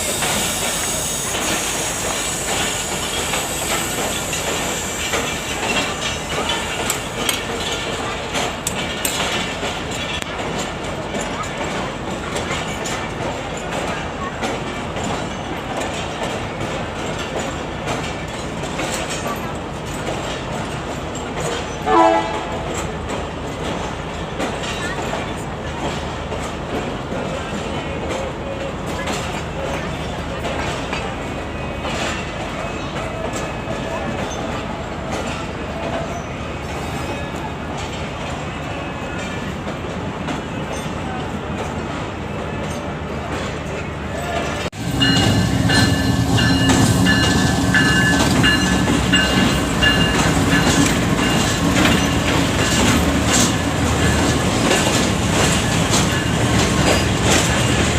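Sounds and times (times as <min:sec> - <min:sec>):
passenger train rumbling: 0:00.0 - 0:57.9
wheels clattering over track: 0:39.2 - 0:57.9.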